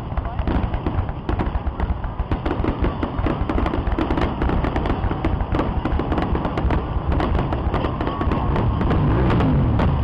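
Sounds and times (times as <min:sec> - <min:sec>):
fireworks bangs and crackles: 0:00.0 - 0:10.0
steady low rumble: 0:00.0 - 0:10.0.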